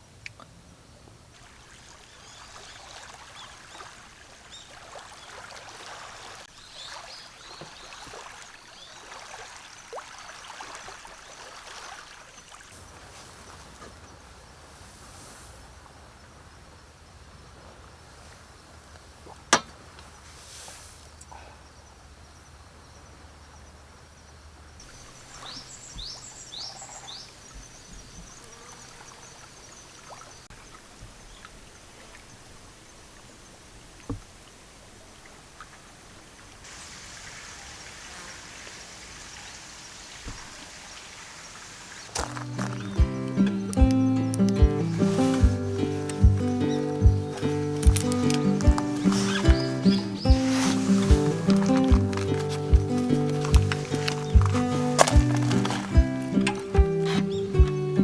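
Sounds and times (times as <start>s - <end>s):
soft crackles and ticks: 42.2s - 58.0s.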